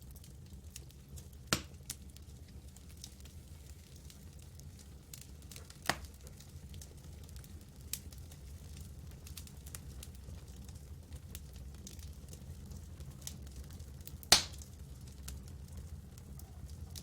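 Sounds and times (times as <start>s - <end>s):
campfire crackling: 0.0s - 17.0s
low fire rumble: 0.0s - 17.0s
loud wood pops: 14.3s - 14.6s.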